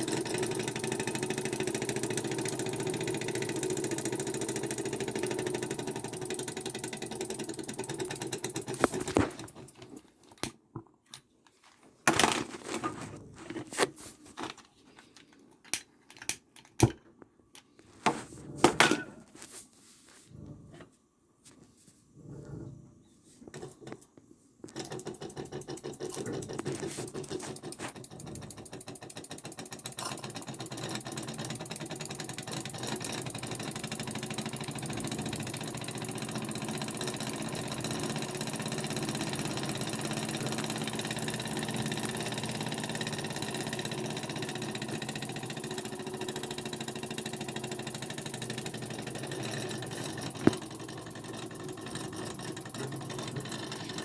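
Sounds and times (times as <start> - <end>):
toy steam engine running: 0.0 - 9.8, 24.8 - 54.0.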